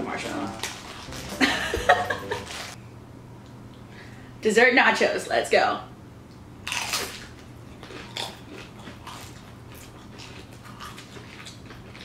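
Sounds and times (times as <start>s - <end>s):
chewing and crunching chips: 6.6s - 12.0s.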